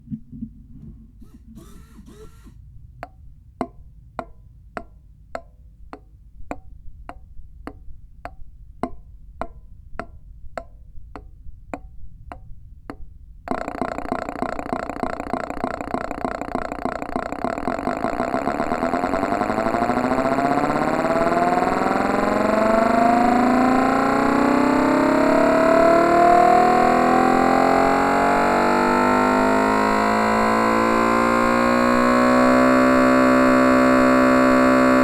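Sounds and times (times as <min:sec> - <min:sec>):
simulated engine running tone: 0:00.0 - 0:02.6, 0:13.5 - 0:35.0
slow single clicks: 0:01.4 - 0:23.0.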